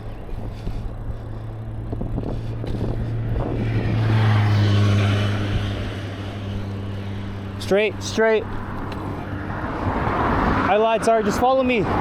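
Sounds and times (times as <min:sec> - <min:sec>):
steady low hum: 0:00.0 - 0:10.5
motor vehicle passing: 0:00.0 - 0:12.0.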